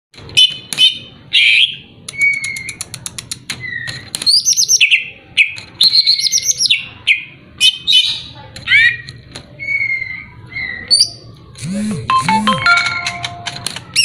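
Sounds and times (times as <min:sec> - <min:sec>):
bird singing varied song: 0:00.4 - 0:02.9, 0:03.6 - 0:11.4.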